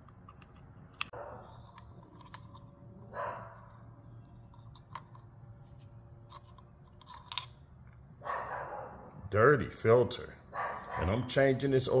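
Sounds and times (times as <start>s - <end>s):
low steady hum: 0.0s - 12.0s
small metal parts clicking: 6.3s - 8.0s.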